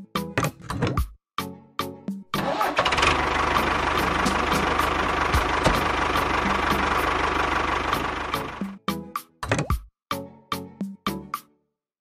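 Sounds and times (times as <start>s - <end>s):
small engine knocking: 2.6s - 8.6s.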